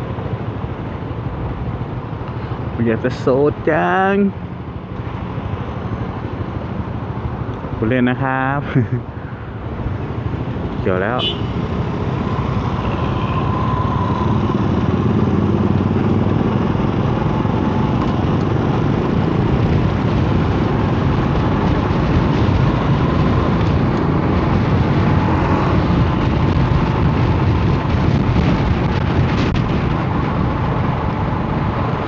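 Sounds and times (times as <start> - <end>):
wind buffeting microphone: 9.0 - 32.0.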